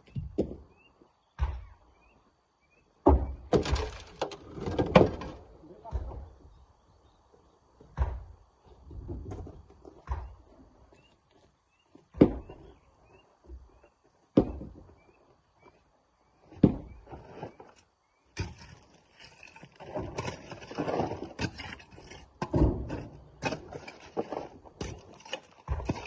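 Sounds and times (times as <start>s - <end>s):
rocks clattering and scraping: 3.5s - 6.2s, 16.5s - 26.0s
heavy knocks of rock: 12.1s - 12.6s.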